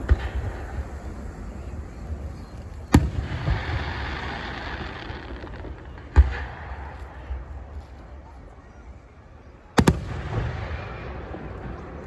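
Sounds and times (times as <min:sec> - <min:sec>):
firework hiss: 0:00.0 - 0:07.5
fireworks bangs: 0:00.0 - 0:08.2, 0:09.7 - 0:12.0.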